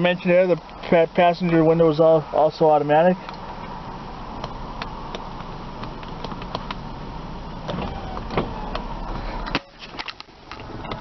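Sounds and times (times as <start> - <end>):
power window motor running: 4.3 - 9.4.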